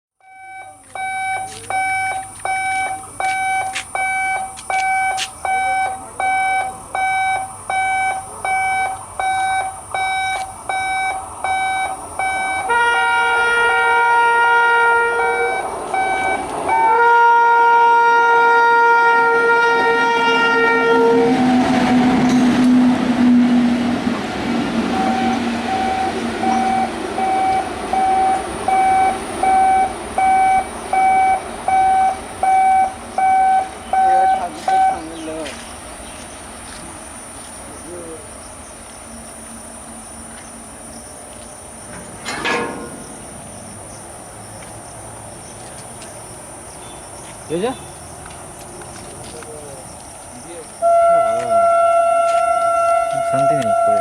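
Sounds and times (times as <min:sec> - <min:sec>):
electronic warning beeps: 0:00.2 - 0:12.7, 0:15.2 - 0:16.9, 0:24.9 - 0:35.1, 0:50.8 - 0:54.0
train passing with low rush: 0:00.2 - 0:54.0
locomotive multi-tone horn: 0:12.5 - 0:24.1, 0:24.7 - 0:28.9, 0:50.8 - 0:54.0.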